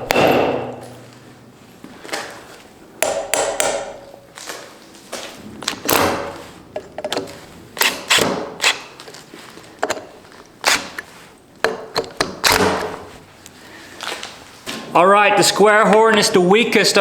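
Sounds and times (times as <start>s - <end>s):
hammer striking anvil: 0.0s - 1.1s, 3.0s - 4.0s.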